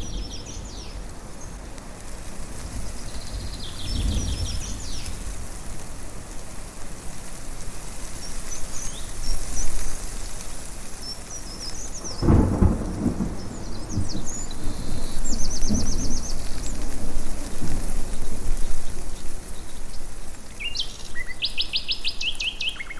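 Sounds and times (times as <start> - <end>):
birds chirping: 0.0 - 1.7, 11.0 - 22.9
wind and rain hiss: 0.0 - 22.9
thunder rumbling: 2.4 - 6.3, 11.5 - 20.4.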